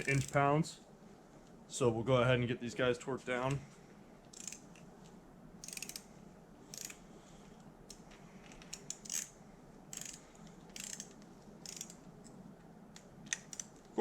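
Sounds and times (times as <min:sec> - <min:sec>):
ratchet pawl clicking: 0:00.0 - 0:00.4, 0:04.3 - 0:04.7, 0:05.6 - 0:06.1, 0:06.7 - 0:07.0, 0:08.6 - 0:12.0, 0:13.3 - 0:13.8.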